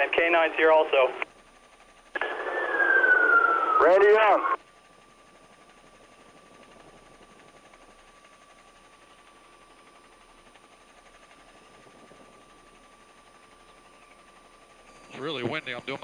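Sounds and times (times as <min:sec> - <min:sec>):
faint radio hiss: 0:00.0 - 0:01.3, 0:02.2 - 0:04.6
low hum: 0:02.2 - 0:04.6.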